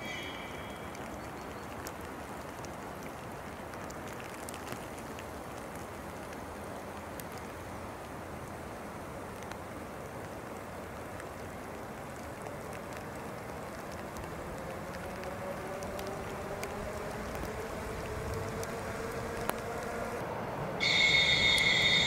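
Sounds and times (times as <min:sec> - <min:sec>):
faint rising whine: 0:15.2 - 0:22.0
train approaching hiss: 0:20.8 - 0:22.0.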